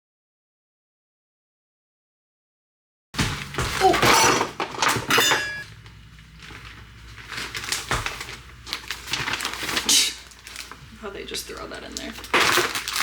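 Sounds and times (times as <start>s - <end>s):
objects clattering and clinking: 3.2s - 10.8s, 12.0s - 13.0s.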